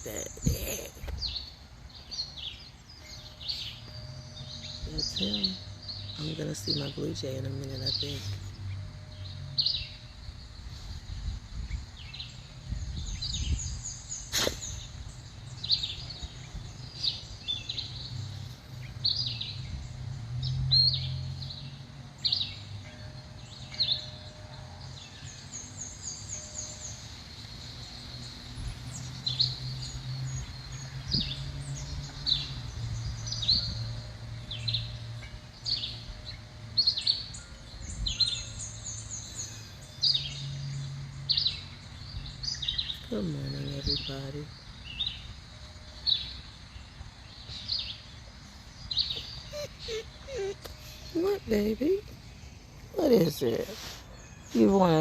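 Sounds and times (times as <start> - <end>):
songbirds chirping: 0.0 - 55.0
high bird trills: 47.4 - 55.0.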